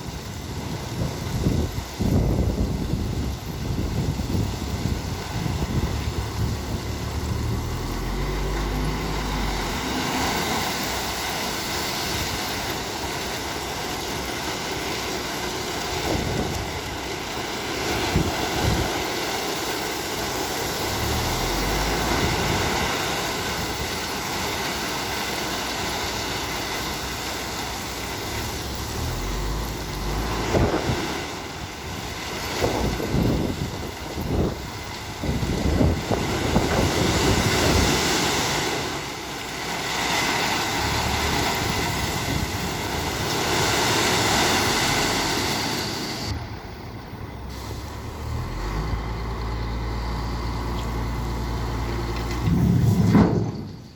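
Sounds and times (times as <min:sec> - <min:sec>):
wind noise on microphone: 0:00.0 - 0:10.7, 0:15.9 - 0:17.0, 0:17.9 - 0:19.2, 0:28.4 - 0:39.1, 0:40.2 - 0:53.9
heavy truck engine running: 0:00.0 - 0:53.9.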